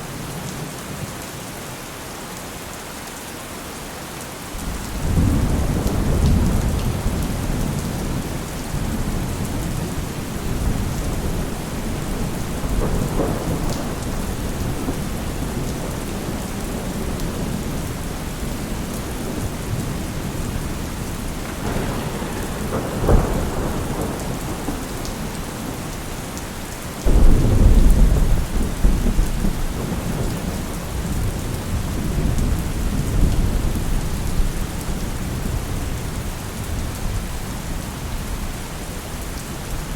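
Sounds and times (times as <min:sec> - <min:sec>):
steady rain: 0:00.0 - 0:39.9
thunder crack: 0:04.6 - 0:17.9, 0:21.2 - 0:26.3, 0:27.0 - 0:31.4
thunder rolling: 0:04.6 - 0:26.4, 0:27.0 - 0:35.6.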